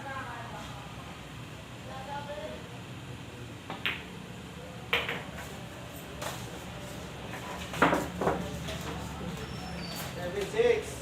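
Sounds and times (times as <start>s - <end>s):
pool balls and cue clicking: 3.7s - 4.1s, 4.9s - 5.5s.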